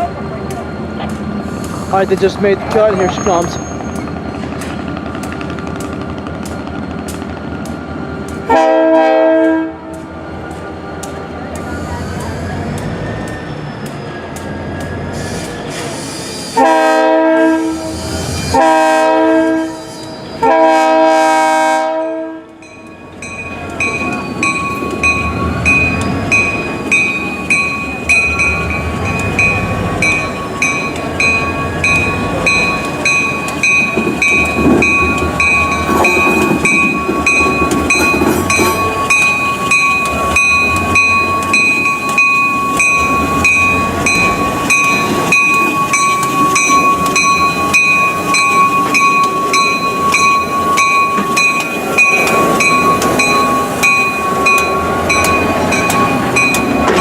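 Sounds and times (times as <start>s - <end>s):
locomotive bell ringing: 0.0s - 7.2s, 22.6s - 57.0s
locomotive horn blasts: 8.5s - 10.0s, 16.6s - 17.9s, 18.5s - 19.8s, 20.4s - 22.6s.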